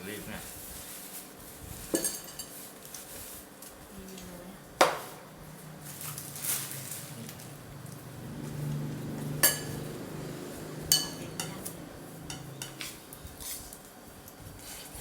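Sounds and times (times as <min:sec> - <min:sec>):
cutlery clinking against bowl: 0:01.9 - 0:02.6, 0:09.3 - 0:10.0, 0:10.8 - 0:13.6
light cutlery taps: 0:10.8 - 0:13.6.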